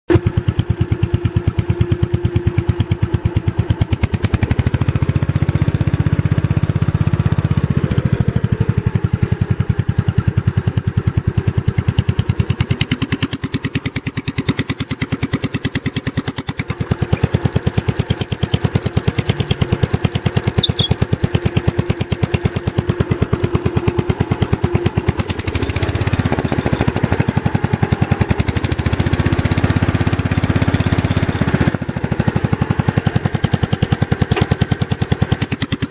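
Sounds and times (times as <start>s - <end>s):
tractor engine running: 0.1s - 35.9s.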